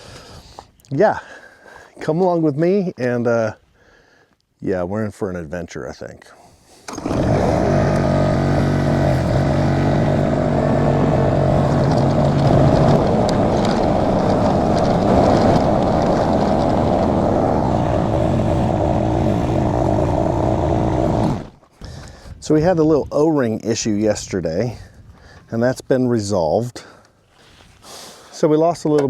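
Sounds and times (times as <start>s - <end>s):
skid steer engine running: 6.9s - 21.6s.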